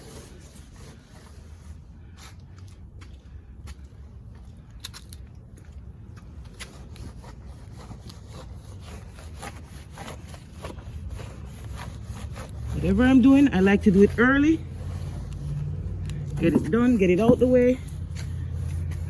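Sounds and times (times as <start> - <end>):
brush scrubbing car body: 0.0 - 1.9, 6.5 - 19.0.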